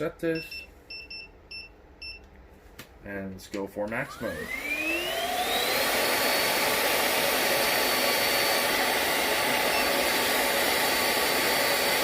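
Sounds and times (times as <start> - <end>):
vacuum cleaner whining: 4.0 - 12.0.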